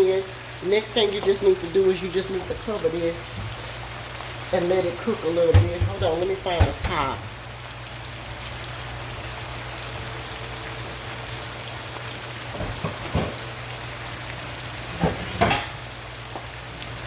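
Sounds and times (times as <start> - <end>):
potatoes sizzling in a skillet: 0.0 - 17.0
cookware clattering: 5.5 - 7.2, 15.0 - 15.8.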